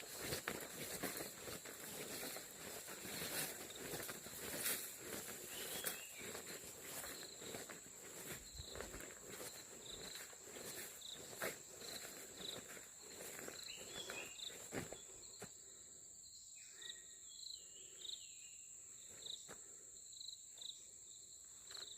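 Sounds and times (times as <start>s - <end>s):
footsteps on dirt path: 0.0s - 15.6s
insect chirps: 0.0s - 21.9s
insect drone: 0.0s - 21.9s.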